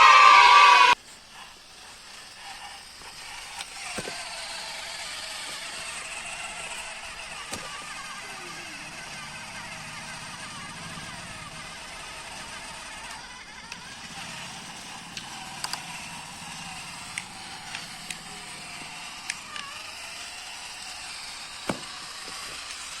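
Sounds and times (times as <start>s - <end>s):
steady hiss: 0.0s - 12.8s
tractor engine humming: 0.0s - 23.0s
sharp clicks: 12.4s - 23.0s.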